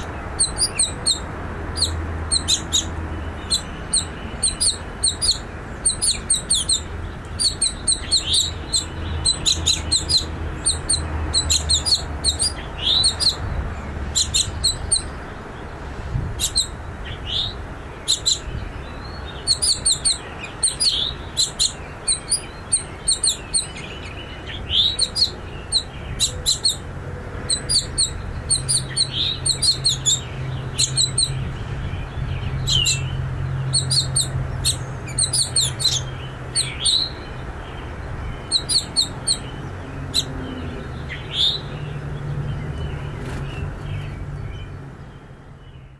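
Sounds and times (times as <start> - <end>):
nestlings chirping: 0.0 - 44.2.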